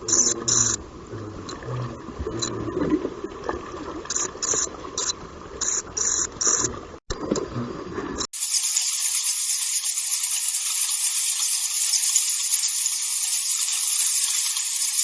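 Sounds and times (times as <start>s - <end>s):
bats squeaking: 8.4s - 15.0s.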